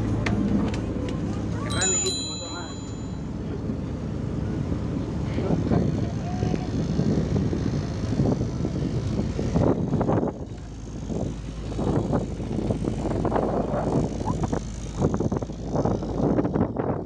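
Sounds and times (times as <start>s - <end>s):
boat motor running: 0.0s - 16.8s.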